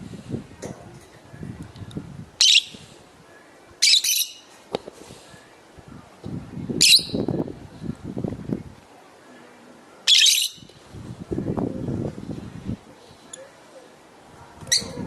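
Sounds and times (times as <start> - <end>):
birds squawking shrilly: 2.4 - 2.8, 10.1 - 10.7.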